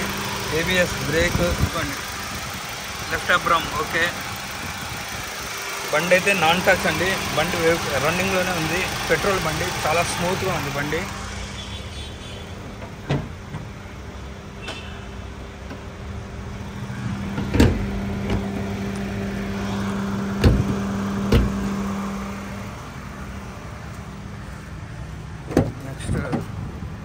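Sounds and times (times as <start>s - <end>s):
car engine idling: 0.0s - 27.0s
sharp knocks: 20.4s - 21.6s.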